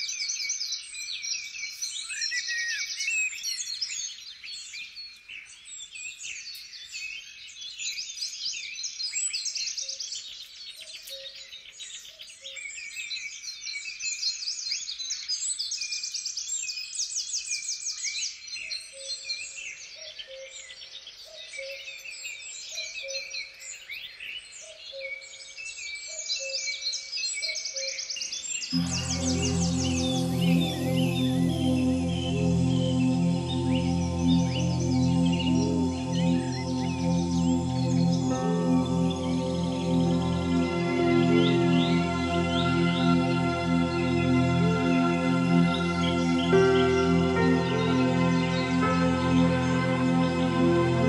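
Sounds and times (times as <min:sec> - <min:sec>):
birds chirping and trilling: 0:28.8 - 0:51.0.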